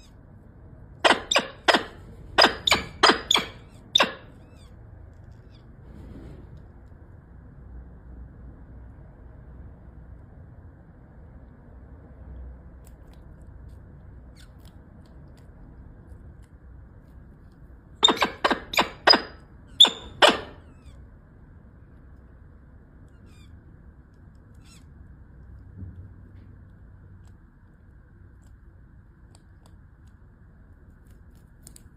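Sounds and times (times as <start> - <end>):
faint steady background noise: 0.0 - 31.9
raptor chick squeaky calls: 1.0 - 4.8, 18.0 - 21.0, 23.1 - 23.6, 24.6 - 24.9.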